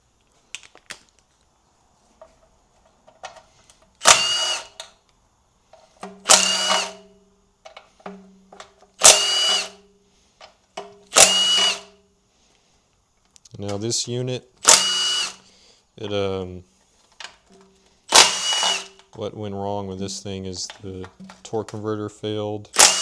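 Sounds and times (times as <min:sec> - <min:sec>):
cordless power tool spinning bolts: 0:04.0 - 0:04.9, 0:06.2 - 0:07.1, 0:09.0 - 0:09.8, 0:11.1 - 0:12.0, 0:14.6 - 0:15.4, 0:18.1 - 0:19.1, 0:22.7 - 0:23.0.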